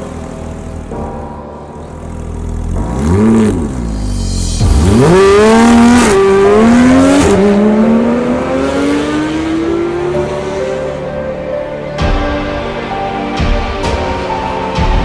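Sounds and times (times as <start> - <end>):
sports car engine accelerating: 0.0 - 11.2.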